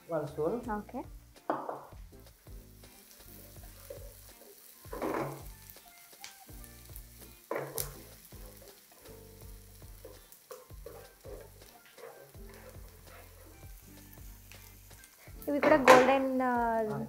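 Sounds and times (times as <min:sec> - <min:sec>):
vegetables sizzling in oil: 0:00.0 - 0:17.0
wooden spatula stirring: 0:07.6 - 0:14.4.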